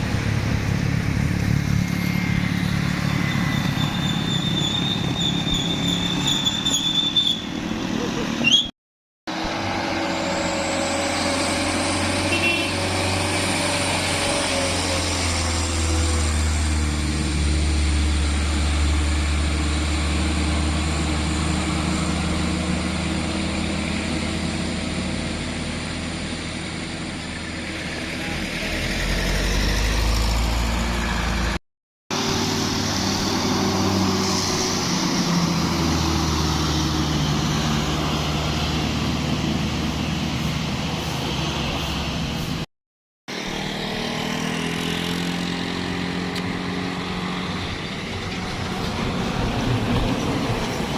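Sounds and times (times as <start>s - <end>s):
truck diesel engine under load: 0.0s - 6.3s, 9.3s - 42.7s, 43.3s - 50.9s.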